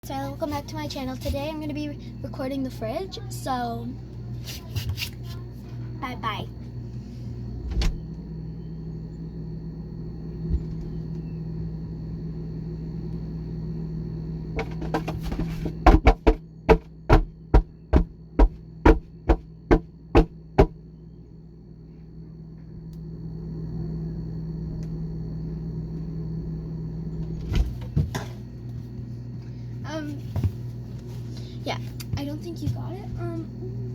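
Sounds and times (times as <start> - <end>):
refrigerator humming: 0.0 - 33.9
sharp knocks: 15.8 - 20.8.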